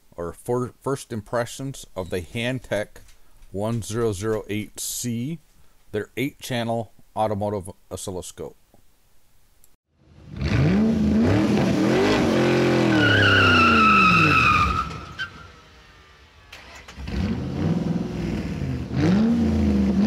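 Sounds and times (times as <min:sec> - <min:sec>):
car engine revving hard: 0:10.2 - 0:15.2, 0:16.6 - 0:20.0
tyres squealing: 0:12.7 - 0:15.5.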